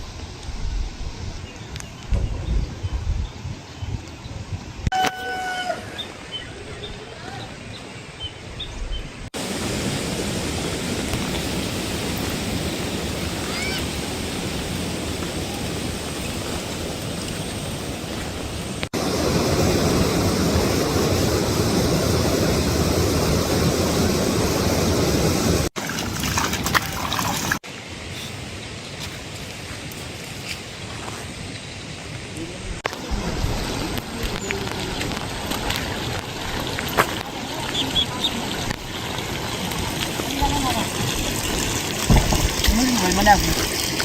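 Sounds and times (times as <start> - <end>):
water rushing: 9.2 - 30.0, 31.3 - 44.0.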